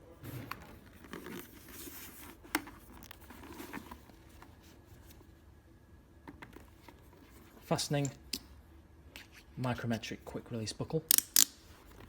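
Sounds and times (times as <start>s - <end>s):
helmet handling rustling: 0.2s - 5.2s.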